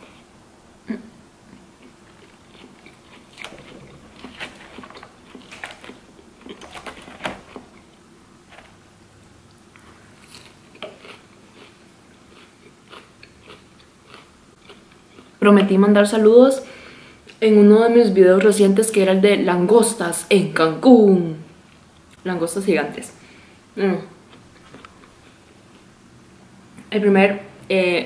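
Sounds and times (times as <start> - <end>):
crunchy chewing of salad: 1.4 - 8.7, 9.5 - 15.7, 24.2 - 26.0.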